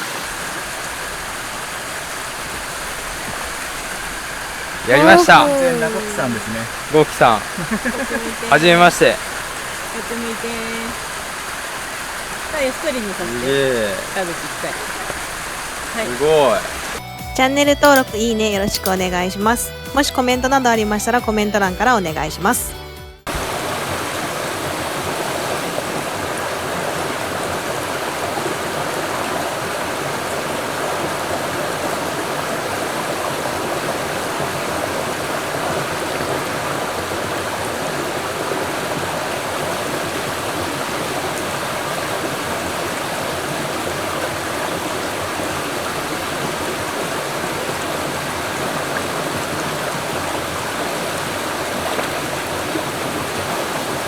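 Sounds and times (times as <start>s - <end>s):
mountain stream rushing: 0.0s - 17.0s, 23.3s - 54.0s.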